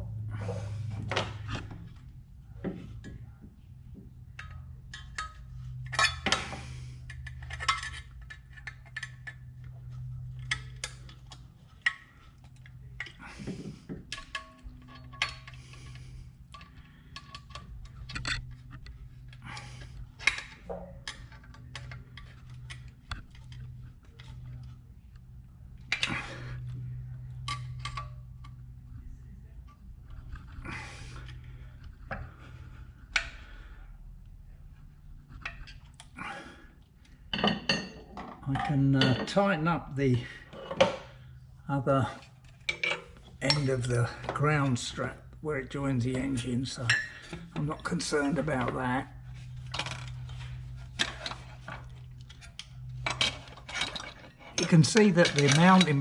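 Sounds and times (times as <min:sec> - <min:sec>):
steady low hum: 0:00.0 - 0:56.0
hand tools clinking on metal: 0:42.7 - 0:45.1, 0:51.0 - 0:56.0.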